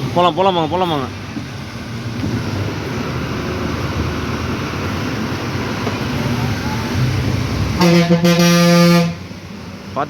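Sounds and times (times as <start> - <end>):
lorry engine and road noise: 0.0 - 10.0
lorry horn: 7.8 - 9.2.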